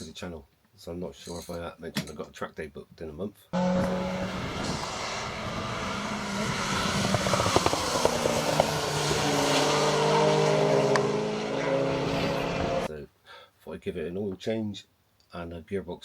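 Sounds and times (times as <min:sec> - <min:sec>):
car engine running under load: 0:03.6 - 0:12.9.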